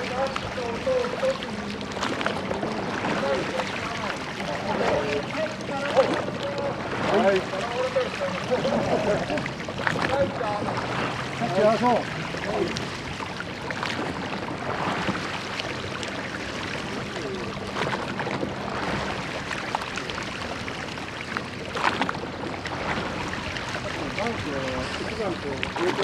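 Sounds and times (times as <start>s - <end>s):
splashes or knocks: 0.0s - 8.0s, 17.6s - 26.0s
rushing water: 0.0s - 26.0s
wind: 0.0s - 26.0s.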